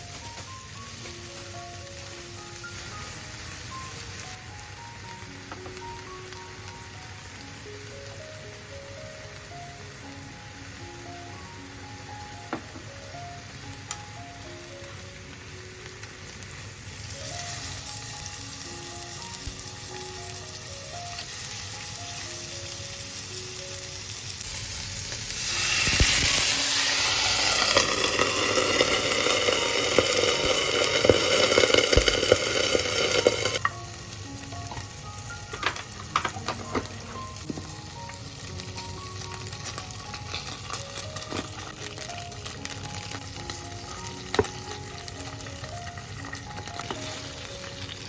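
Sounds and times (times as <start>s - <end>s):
food sizzling in frying pan: 0.0s - 48.0s
soft background music: 0.0s - 48.0s.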